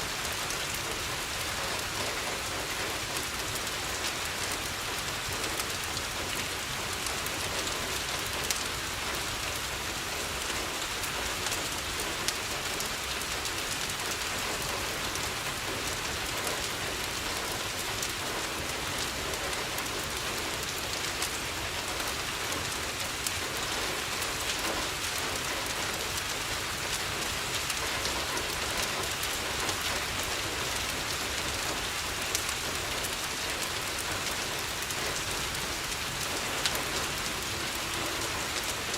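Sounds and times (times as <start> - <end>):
rain pattering on a window: 0.0 - 38.9
wood fire crackling: 16.2 - 38.9.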